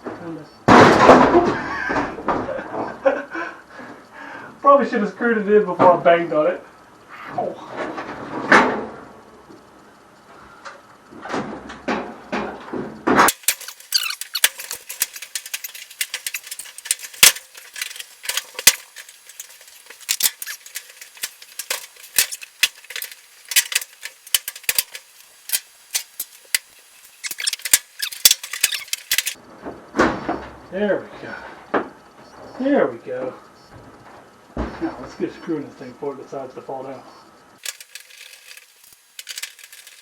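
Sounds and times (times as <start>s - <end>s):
panel clicks scrapes and squeaks: 13.3s - 29.4s.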